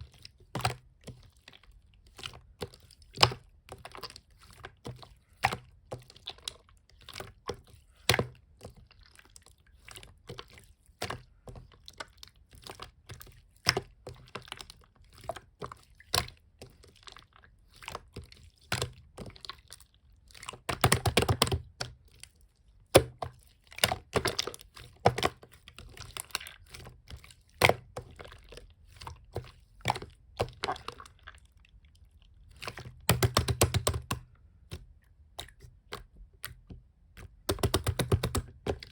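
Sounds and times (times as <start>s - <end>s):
slime squished by hand: 27.7s - 38.9s.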